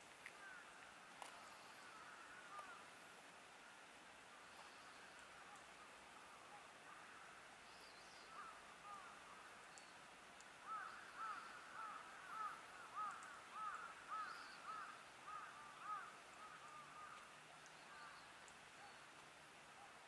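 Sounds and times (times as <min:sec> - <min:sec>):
faint bird calls: 0:00.2 - 0:03.0, 0:04.3 - 0:10.0, 0:10.6 - 0:20.0.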